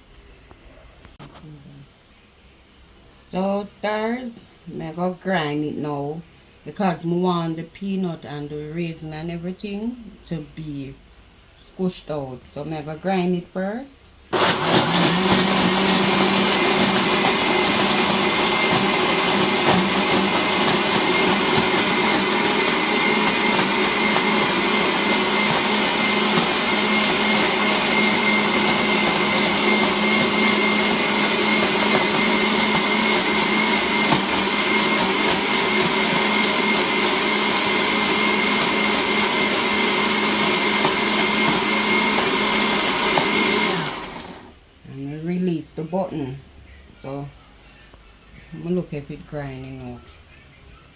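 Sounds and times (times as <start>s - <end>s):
electric blender grinding: 14.4s - 44.5s.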